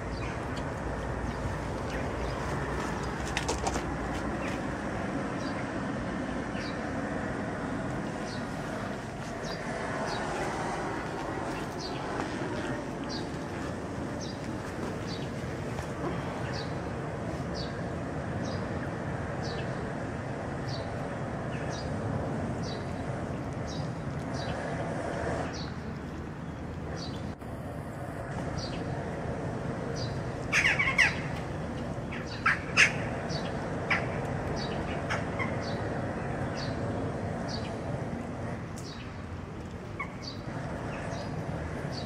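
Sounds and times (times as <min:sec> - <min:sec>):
outdoor background rumble: 0:00.0 - 0:42.0
harsh bird calls: 0:29.9 - 0:39.1.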